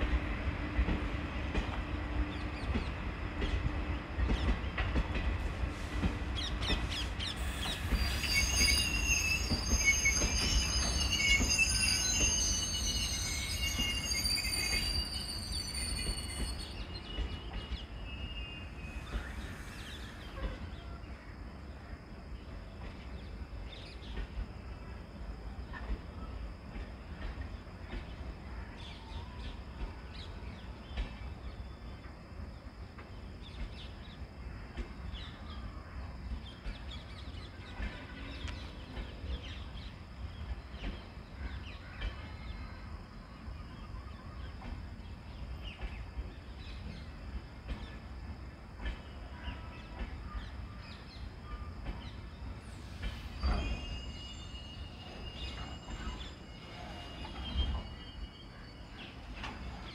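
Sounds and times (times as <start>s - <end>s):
train rolling past rumble: 0.0s - 59.9s
high squeal: 7.4s - 17.0s, 52.6s - 59.9s.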